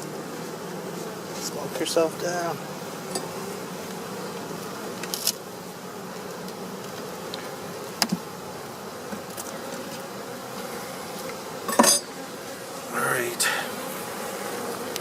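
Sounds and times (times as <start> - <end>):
bees buzzing: 0.0 - 15.0
clicks of hive parts: 3.0 - 5.4, 6.2 - 8.4, 9.0 - 12.2, 14.6 - 15.0.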